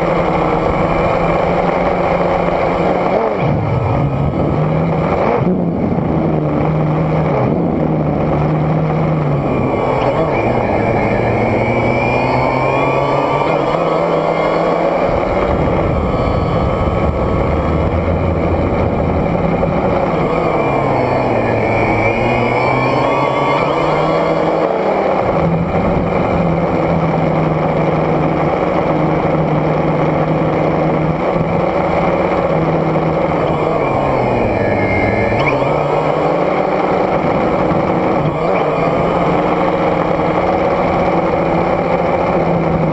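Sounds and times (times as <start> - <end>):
drone propellers humming: 0.0 - 42.9
high motor whine: 0.0 - 42.9.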